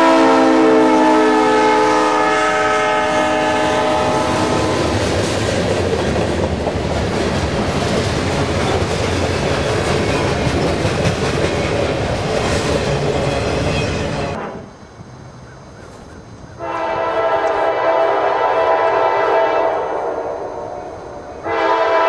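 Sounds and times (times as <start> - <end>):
locomotive air horn chord: 0.0 - 5.0, 16.6 - 20.7, 21.4 - 22.0
steel wheels on rail: 0.0 - 14.8, 15.8 - 22.0
diesel locomotive engine: 0.0 - 22.0.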